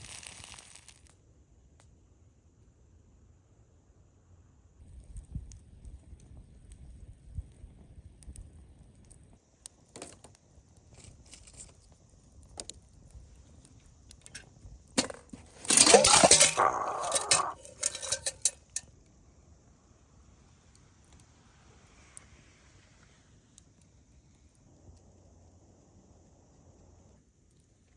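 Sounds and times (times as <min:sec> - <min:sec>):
metal cookware clinking and clattering: 0:15.0 - 0:18.8.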